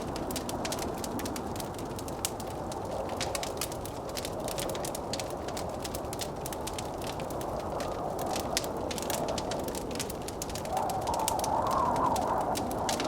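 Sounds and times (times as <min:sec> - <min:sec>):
rushing blizzard wind: 0:00.0 - 0:13.0
wood fire crackling: 0:00.0 - 0:13.0.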